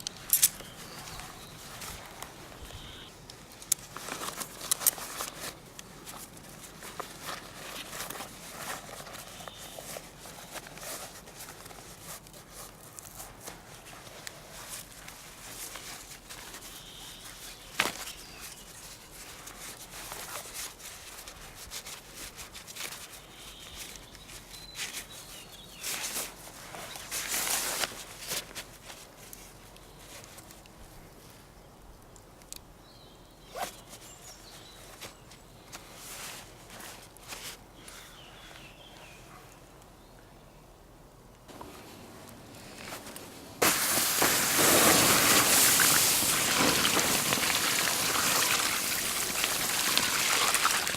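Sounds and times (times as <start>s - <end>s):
rustling: 0.0s - 31.4s, 33.5s - 38.7s, 41.5s - 50.9s
faint birds chirping: 0.5s - 3.2s, 37.7s - 42.9s.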